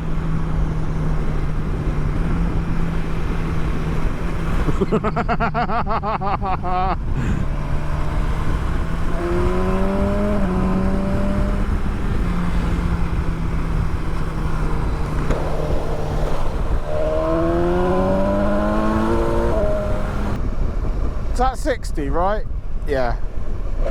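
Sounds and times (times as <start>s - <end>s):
wind noise: 0.0s - 23.9s
motorcycle engine revving: 7.2s - 20.5s.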